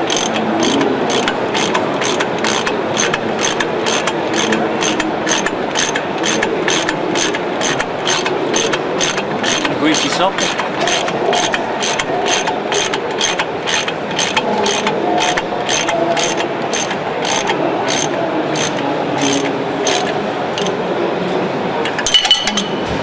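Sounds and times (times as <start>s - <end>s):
ratchet wrench clicking: 0.0s - 20.8s.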